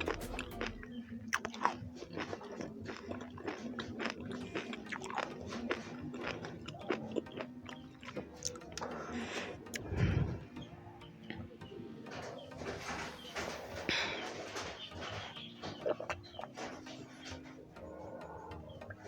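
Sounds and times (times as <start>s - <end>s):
person chewing crunchy food: 0.0s - 10.5s.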